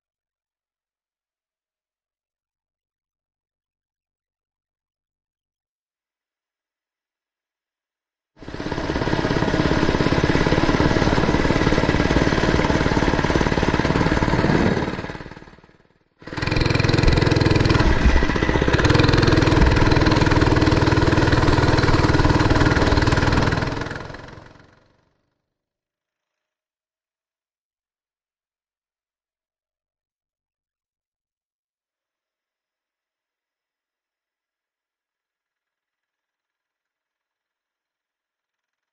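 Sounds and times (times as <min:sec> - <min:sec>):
mini bike engine running: 0:08.4 - 0:24.9.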